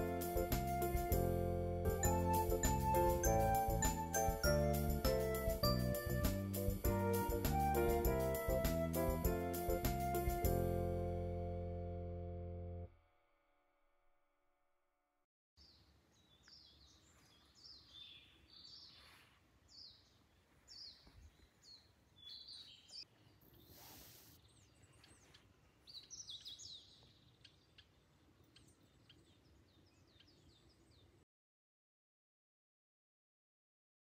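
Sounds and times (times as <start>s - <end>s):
birds chirping and trilling: 15.6s - 31.2s.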